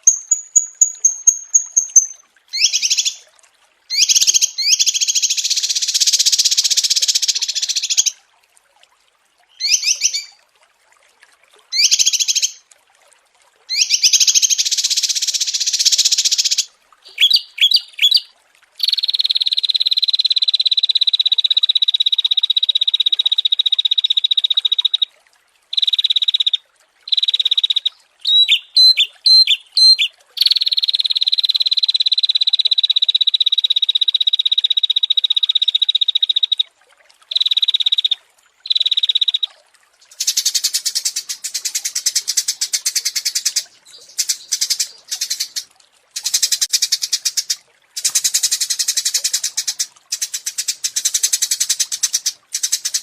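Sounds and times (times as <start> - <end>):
rasping rapid bird trill: 0.0 - 3.2
sharp bird chirps: 0.0 - 3.2, 28.2 - 30.8.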